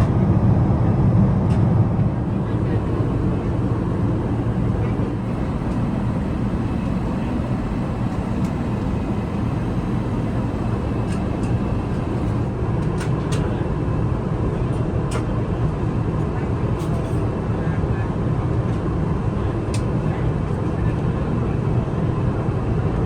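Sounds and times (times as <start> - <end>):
airplane cabin rush: 1.5 - 13.6.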